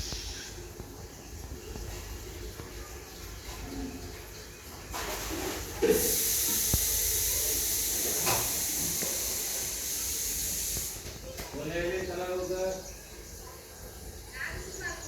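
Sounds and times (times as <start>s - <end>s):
high hiss: 5.8s - 11.3s.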